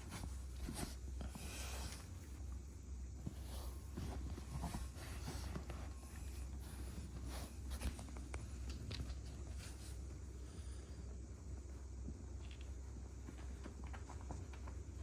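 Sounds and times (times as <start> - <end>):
light scratching and rustling: 0.0 - 10.3
low steady hum: 0.0 - 15.0.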